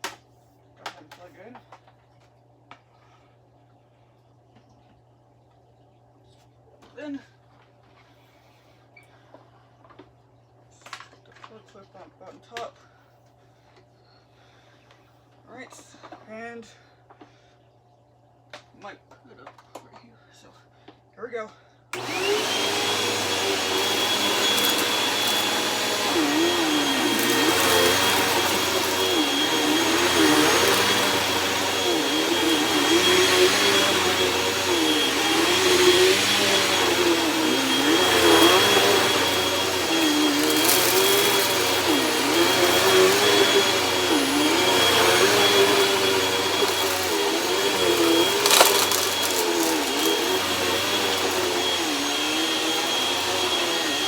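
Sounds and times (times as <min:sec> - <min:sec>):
upright vacuum cleaner running: 0:22.0 - 0:54.0.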